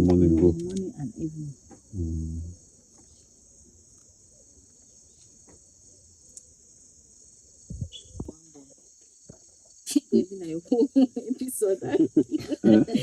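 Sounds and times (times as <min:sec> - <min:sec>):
crickets chirping: 0:00.0 - 0:13.0
low thumps: 0:07.7 - 0:08.4.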